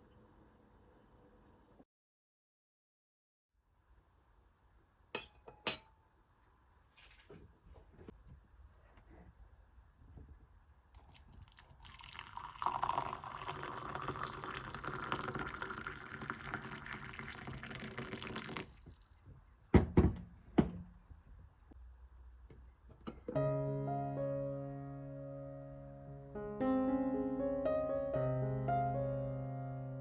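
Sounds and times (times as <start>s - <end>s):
water pouring: 11.0s - 19.7s
soft piano music: 23.2s - 30.0s.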